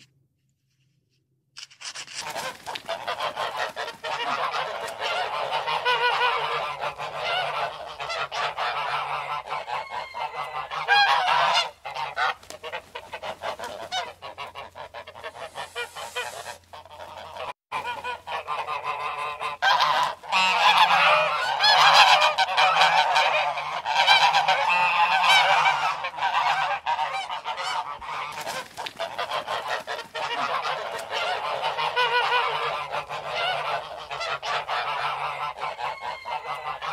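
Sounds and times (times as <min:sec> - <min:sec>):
geese honking: 0:02.2 - 0:36.9.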